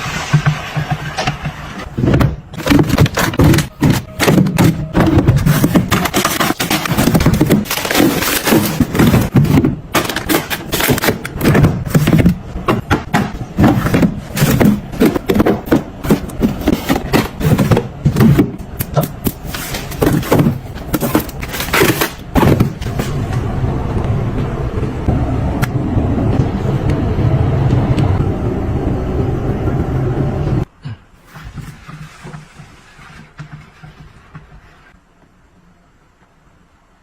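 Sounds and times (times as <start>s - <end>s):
household items knocking and scraping: 0.0s - 23.5s, 31.2s - 35.0s.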